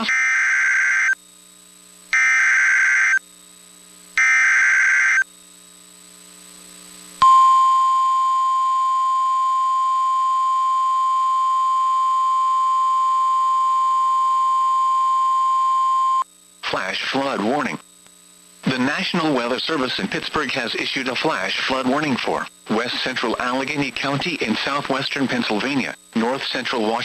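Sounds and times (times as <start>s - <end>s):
screechy digital data tones: 0.0s - 1.2s, 2.2s - 3.2s, 4.2s - 5.3s
steady loud alarm tone: 0.0s - 1.2s, 2.1s - 3.2s, 4.2s - 5.3s, 7.2s - 16.2s.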